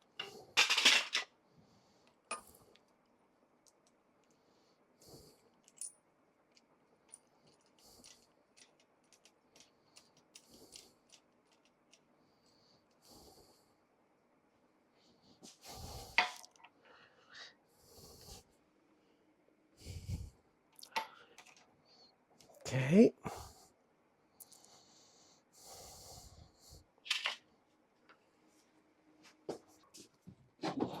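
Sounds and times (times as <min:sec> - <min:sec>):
soft breathing: 0:09.6 - 0:13.8, 0:14.9 - 0:22.2, 0:24.4 - 0:27.0.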